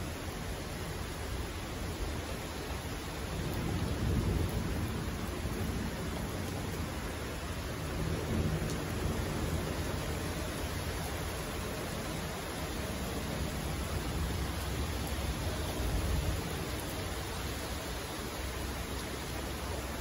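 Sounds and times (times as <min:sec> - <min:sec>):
rain hissing: 0:00.0 - 0:20.0
distant thunder rumbling: 0:03.4 - 0:17.7.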